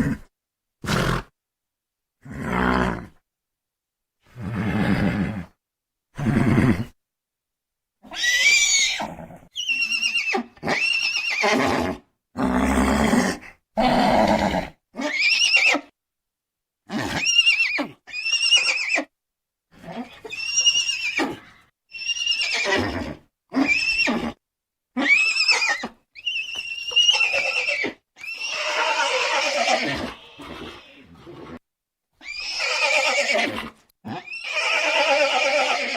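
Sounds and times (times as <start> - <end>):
horse whinnying: 8.0 - 15.9, 16.9 - 19.1, 19.8 - 24.4, 25.0 - 31.6, 32.2 - 35.9.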